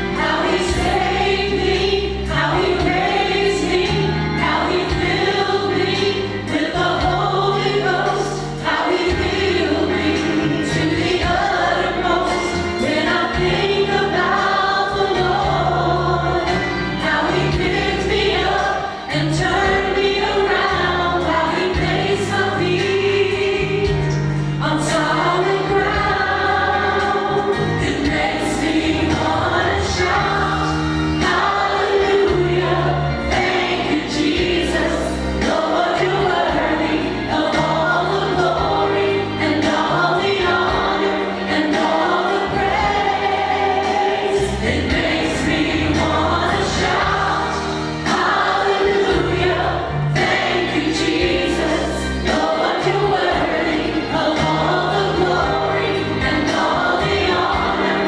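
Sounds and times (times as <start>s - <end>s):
choir singing gospel song: 0.0s - 58.0s
instrumental accompaniment with bass: 0.0s - 58.0s.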